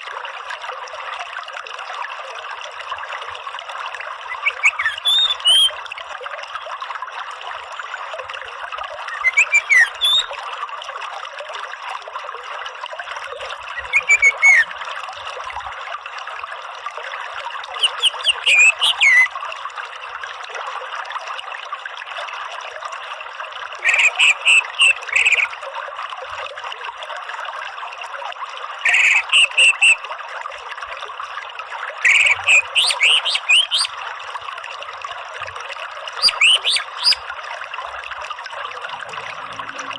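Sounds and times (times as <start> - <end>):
trickle of running water: 0.0 - 39.9
thrush singing whistled notes: 4.3 - 5.8, 9.1 - 10.4, 13.7 - 14.7, 17.8 - 19.3, 23.8 - 25.5, 28.9 - 30.0, 32.0 - 34.0, 36.2 - 37.2.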